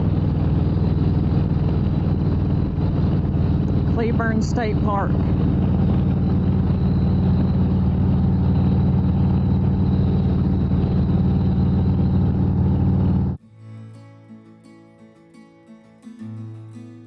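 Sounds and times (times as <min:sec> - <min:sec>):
motorcycle engine running steadily: 0:00.0 - 0:13.4
wind and road noise: 0:00.0 - 0:13.4
faint acoustic guitar music: 0:13.4 - 0:17.0.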